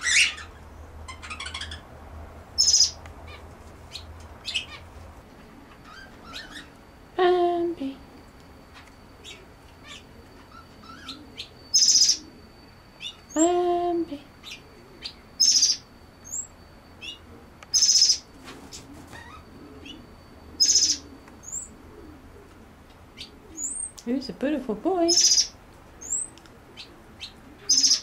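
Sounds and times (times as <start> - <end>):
loud high bird call: 0.0 - 1.8.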